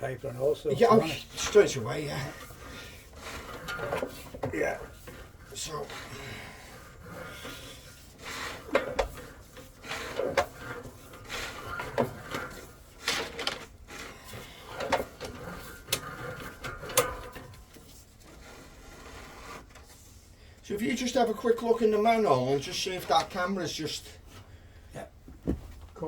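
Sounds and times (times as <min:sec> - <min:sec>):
equipment clattering and scraping: 0:00.0 - 0:20.4, 0:21.0 - 0:26.0.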